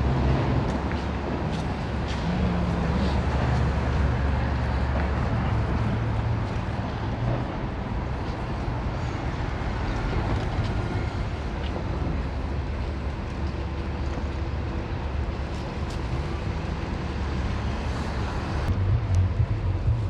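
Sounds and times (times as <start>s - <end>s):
low rumble: 5.4s - 20.0s.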